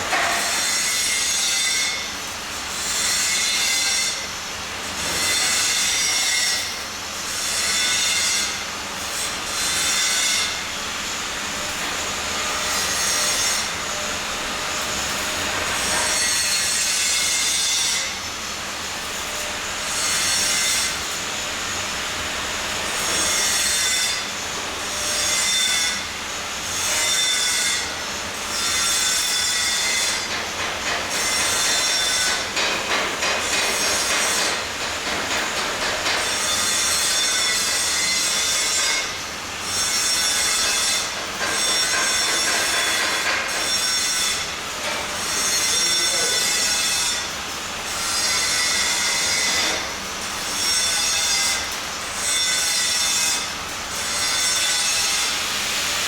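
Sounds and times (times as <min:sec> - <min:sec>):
metal being scraped or sawn: 0:26.8 - 0:47.3, 0:47.9 - 0:56.0.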